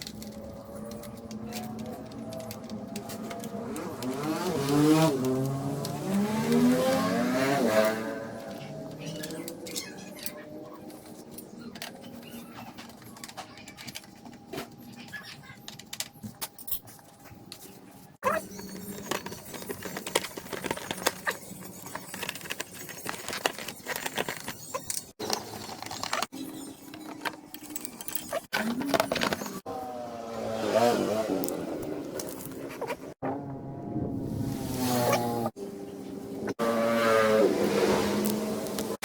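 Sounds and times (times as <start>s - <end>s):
scooter engine idling and revving: 0.0s - 12.7s, 28.4s - 39.0s.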